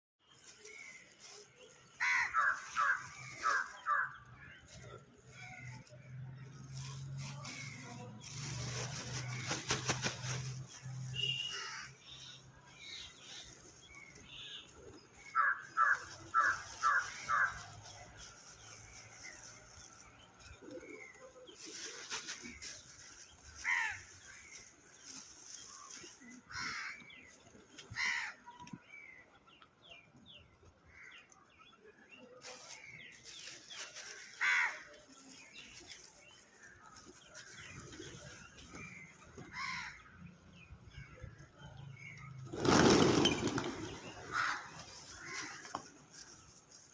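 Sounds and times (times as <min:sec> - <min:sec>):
bird wings flapping: 0:08.4 - 0:10.7, 0:42.5 - 0:44.5.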